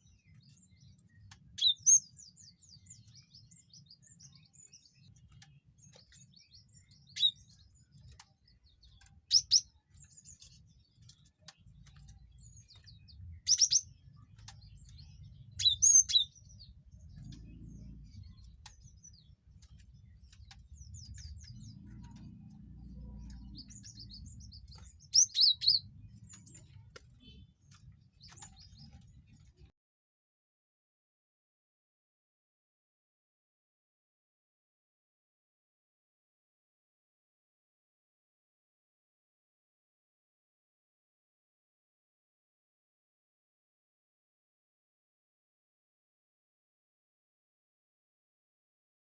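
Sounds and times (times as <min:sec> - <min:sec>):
bird sharp high chirps: 0:01.5 - 0:08.3, 0:08.9 - 0:11.2, 0:11.8 - 0:29.4
low rumble: 0:16.8 - 0:25.1.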